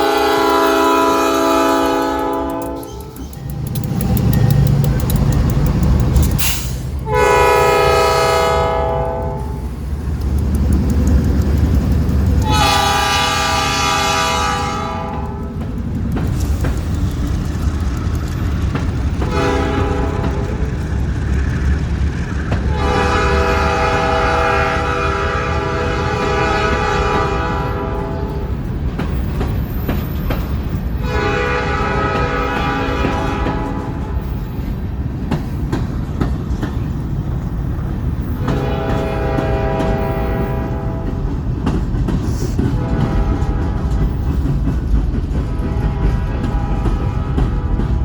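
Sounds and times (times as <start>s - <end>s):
train horn blasts: 0.0s - 3.2s, 7.0s - 9.6s, 12.4s - 15.6s, 19.2s - 20.7s, 22.7s - 28.6s, 31.0s - 34.2s, 38.4s - 41.3s, 42.7s - 44.2s, 45.5s - 48.0s
moving train rumble: 0.0s - 48.0s.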